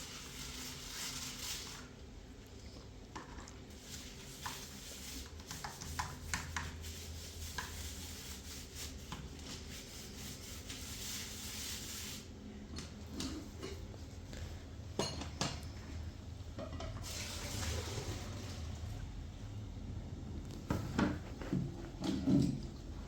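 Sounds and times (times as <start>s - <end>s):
steady low hum: 18.4s - 23.0s.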